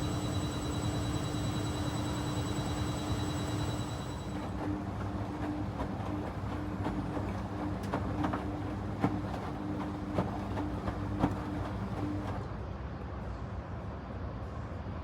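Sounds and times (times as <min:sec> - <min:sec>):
faint high whine: 0:00.0 - 0:04.6
washing machine motor hum: 0:00.0 - 0:12.4.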